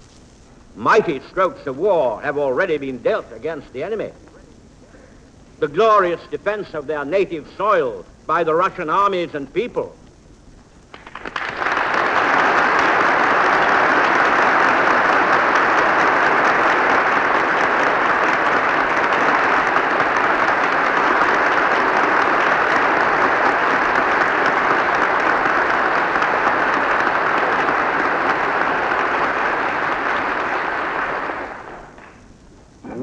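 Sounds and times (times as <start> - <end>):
large audience applauding: 10.9 - 32.3.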